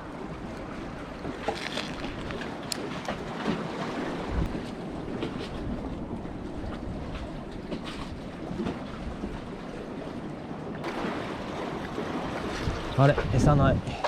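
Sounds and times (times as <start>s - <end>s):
sea waves washing: 0.0s - 14.0s
wind buffeting microphone: 0.0s - 14.0s.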